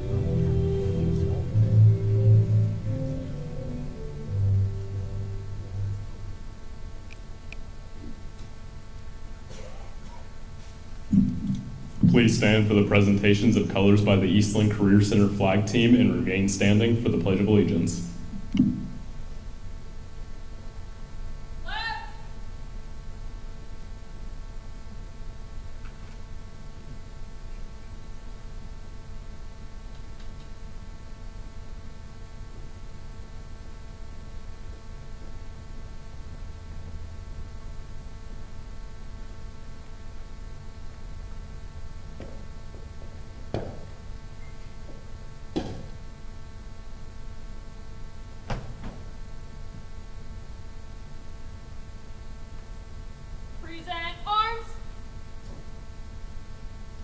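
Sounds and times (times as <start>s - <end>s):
electrical mains hum: 0.0s - 57.0s
low room rumble: 0.0s - 57.0s
sharp knocks: 11.1s - 12.3s, 43.5s - 44.0s, 45.5s - 46.0s.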